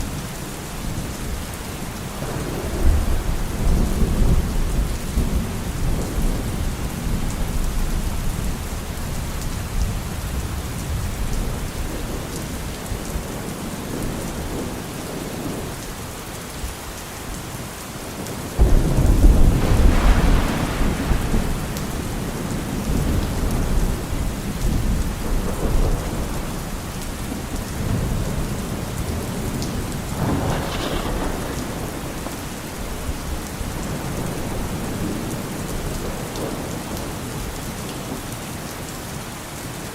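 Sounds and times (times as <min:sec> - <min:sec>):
steady rain: 0:00.0 - 0:39.9
rolling thunder: 0:02.1 - 0:15.7, 0:18.6 - 0:37.6
loud thunderclap: 0:02.2 - 0:08.4, 0:18.6 - 0:36.8.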